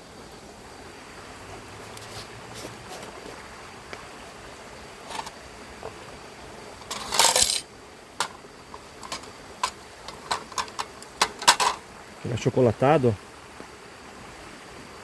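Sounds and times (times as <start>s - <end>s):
steady hiss: 0.0s - 15.0s
metal cookware clinking: 6.8s - 8.4s, 9.0s - 11.8s
loud cookware clatter: 9.0s - 11.8s.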